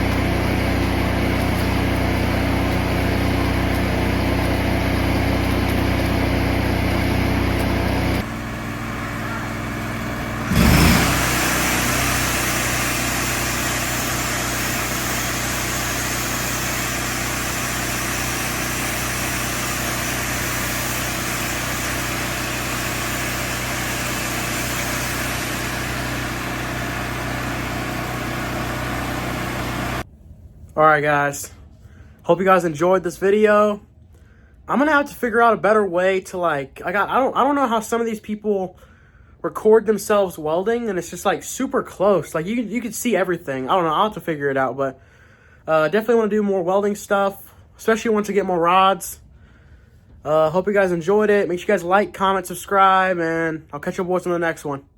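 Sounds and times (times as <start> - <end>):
welding arc crackling: 0.0 - 30.0
small engine running: 0.0 - 30.1.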